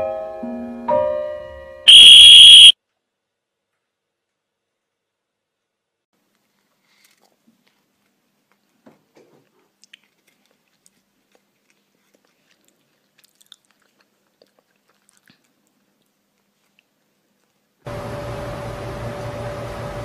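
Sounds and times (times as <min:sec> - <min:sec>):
faint clicks and crunches: 0:09.4 - 0:17.6.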